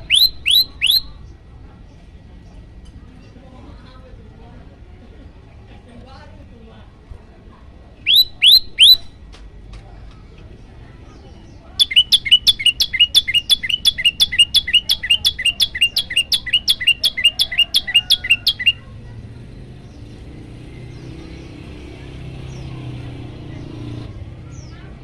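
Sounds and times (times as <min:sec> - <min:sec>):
bird singing sharp chirps: 0:00.0 - 0:01.3, 0:08.0 - 0:09.2, 0:11.8 - 0:18.8.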